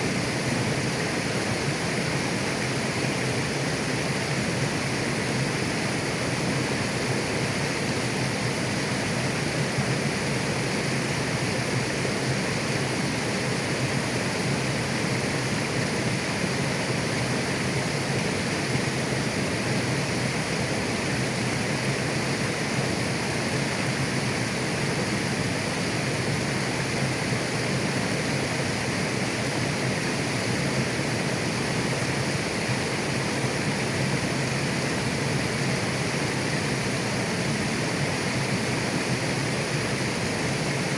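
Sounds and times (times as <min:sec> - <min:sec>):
river flowing over rocks: 0:00.0 - 0:40.9.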